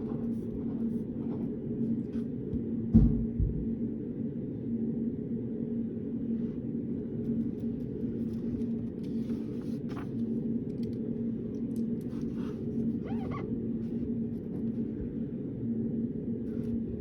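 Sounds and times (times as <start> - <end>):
low room hum: 0.0 - 17.0
pen and paper taps and rustles: 7.2 - 12.9.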